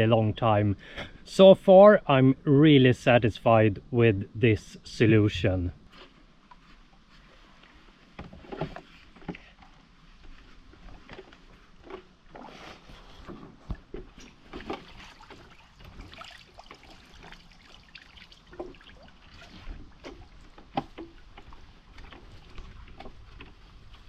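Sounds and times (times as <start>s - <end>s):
paddle splashing in water: 11.1s - 24.0s.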